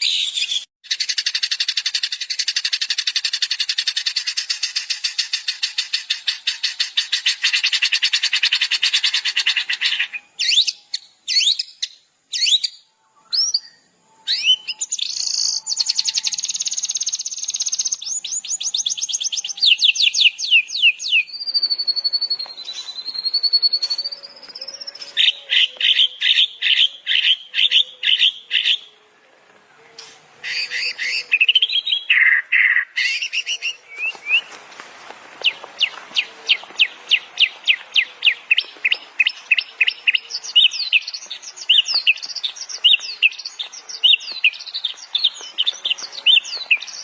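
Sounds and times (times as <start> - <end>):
sharp falling bird whistles: 12.4 - 26.1.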